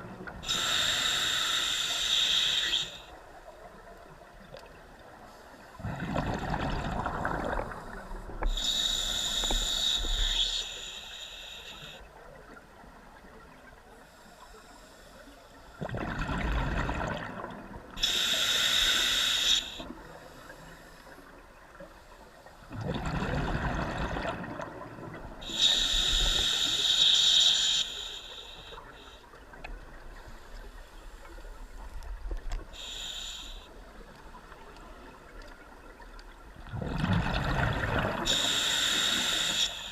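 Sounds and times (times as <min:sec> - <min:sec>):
regulator hissing inhale: 0:00.4 - 0:03.2, 0:07.8 - 0:12.2, 0:14.0 - 0:15.8, 0:18.0 - 0:22.6, 0:25.4 - 0:29.5, 0:30.1 - 0:34.6, 0:38.2 - 0:39.9
exhaled bubbles rushing: 0:05.8 - 0:07.8, 0:15.8 - 0:17.5, 0:22.7 - 0:25.2, 0:36.6 - 0:38.3.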